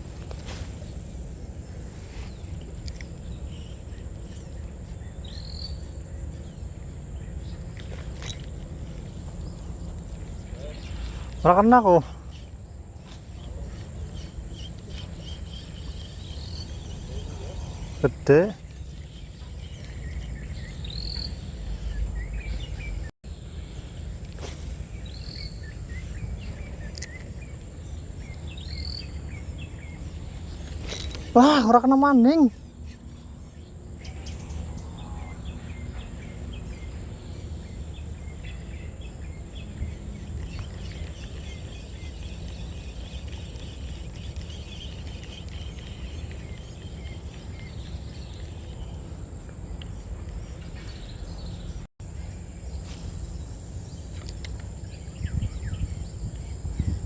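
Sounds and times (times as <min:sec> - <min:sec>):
steady low rumble: 0:00.0 - 0:30.7
high insect drone: 0:00.0 - 0:49.5, 0:50.4 - 0:57.0
rising bird chirp: 0:08.8 - 0:49.0, 0:50.8 - 0:57.0
high-pitched insect drone: 0:52.1 - 0:57.0.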